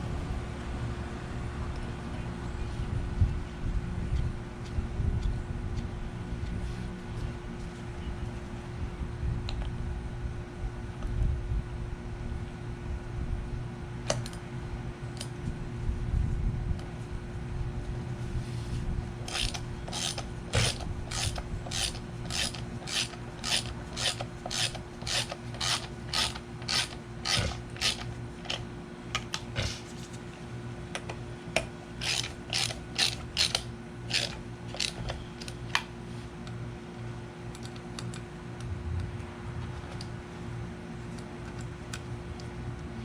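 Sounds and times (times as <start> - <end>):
ratchet wrench clicking: 19.3 - 28.6, 32.0 - 35.1.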